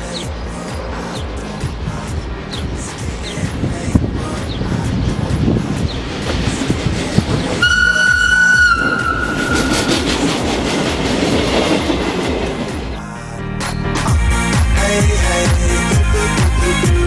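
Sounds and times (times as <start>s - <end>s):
electric train running: 0.0s - 13.0s
train wheels clicking: 0.0s - 13.0s
train horn blast: 7.4s - 10.6s.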